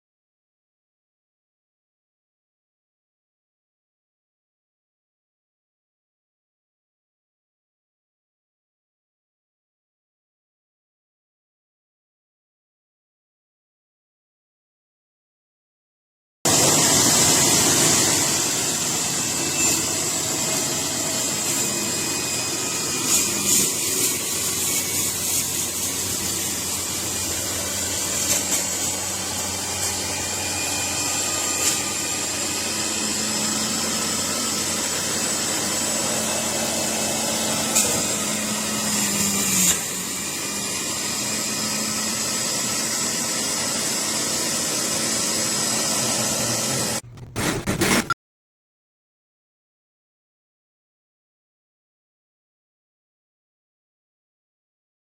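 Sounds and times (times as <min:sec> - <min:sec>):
juicer motor running: 0:16.5 - 0:47.3.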